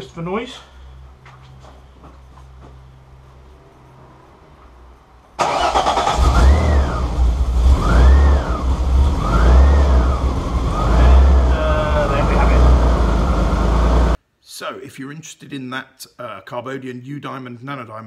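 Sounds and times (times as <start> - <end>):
car engine revving: 5.4 - 14.2.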